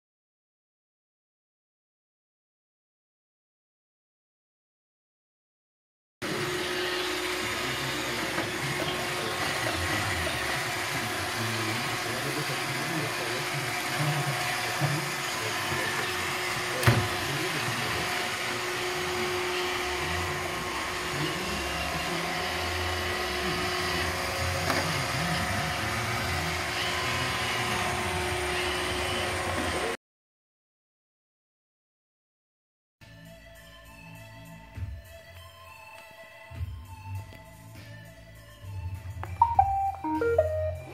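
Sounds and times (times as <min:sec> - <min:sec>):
robot vacuum whirring: 0:06.2 - 0:30.0.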